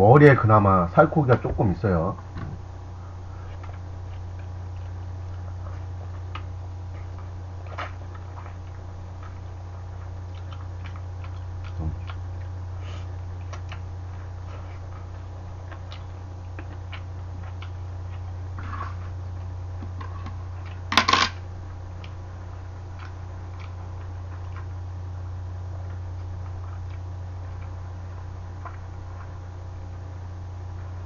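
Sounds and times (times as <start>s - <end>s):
steady low hum: 0.0s - 31.0s
person chewing: 3.4s - 20.9s, 22.0s - 24.8s, 25.8s - 29.4s.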